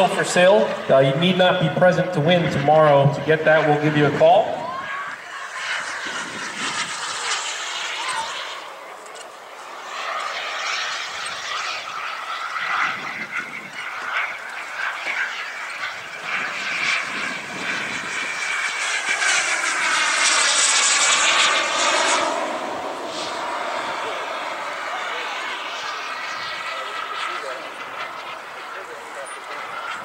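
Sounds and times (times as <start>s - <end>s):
model jet turbine hiss: 5.8s - 8.7s.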